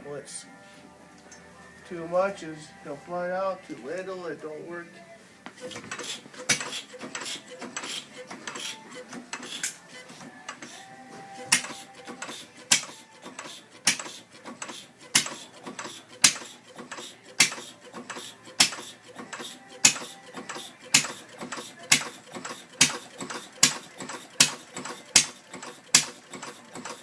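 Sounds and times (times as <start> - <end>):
single-cylinder engine popping: 11.5 - 27.0.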